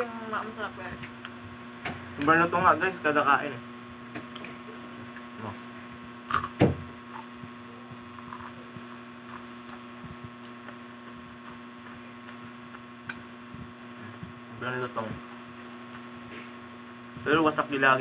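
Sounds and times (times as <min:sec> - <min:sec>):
electrical hum: 0:00.0 - 0:18.0
chewing crisp food: 0:06.3 - 0:13.3, 0:15.2 - 0:16.2.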